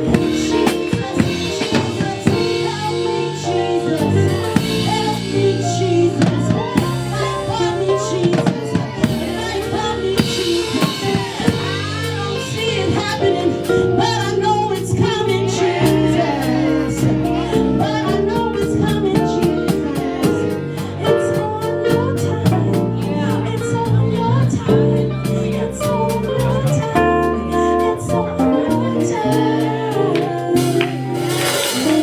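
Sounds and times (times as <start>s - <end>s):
drum kit beat: 0.0s - 32.0s
gospel band music: 0.0s - 32.0s.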